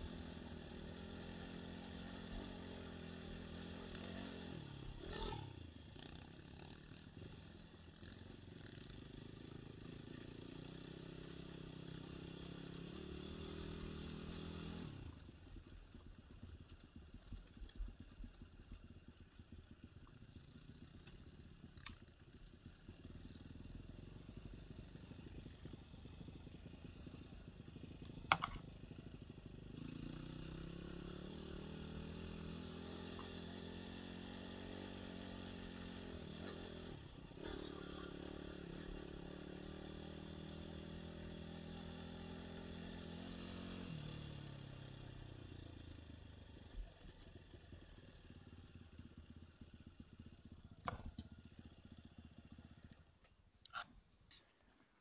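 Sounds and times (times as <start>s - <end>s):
dirt bike engine revving: 0.0s - 6.4s, 9.4s - 15.3s, 29.7s - 45.0s.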